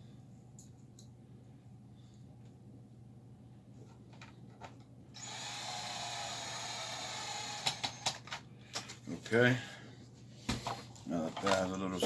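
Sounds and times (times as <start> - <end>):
electric screwdriver running: 5.2 - 8.2.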